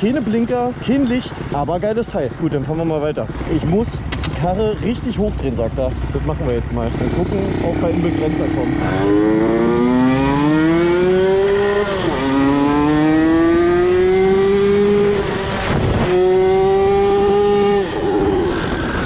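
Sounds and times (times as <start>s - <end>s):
motorcycle engine revving hard: 6.8s - 19.0s.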